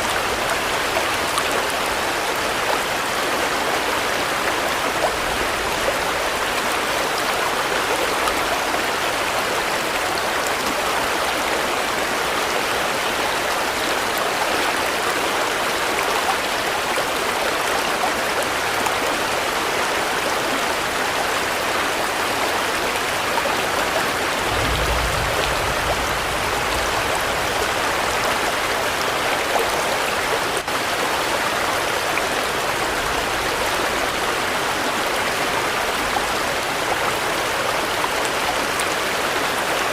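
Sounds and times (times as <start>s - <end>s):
steady rainfall: 0.0s - 39.9s
low rumble: 24.3s - 28.7s.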